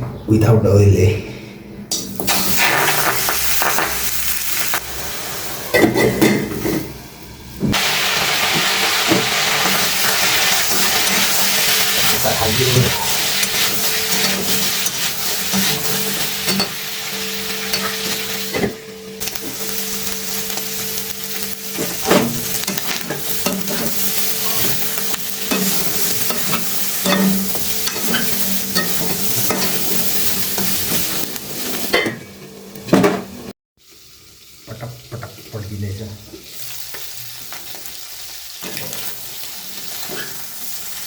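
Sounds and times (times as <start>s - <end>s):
meat sizzling in a pan: 2.2s - 32.0s, 33.8s - 41.0s
spoon scraping pan: 21.8s - 32.1s.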